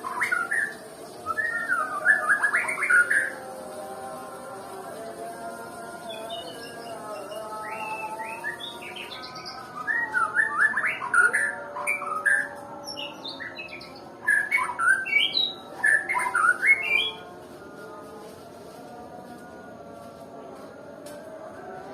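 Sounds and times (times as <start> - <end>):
bird singing whistled phrases: 0.0 - 3.4, 6.2 - 17.2.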